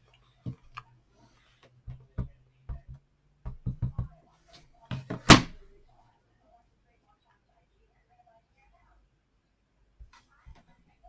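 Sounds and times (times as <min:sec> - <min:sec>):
stamp tapping on ink pad and card: 0:01.9 - 0:04.1.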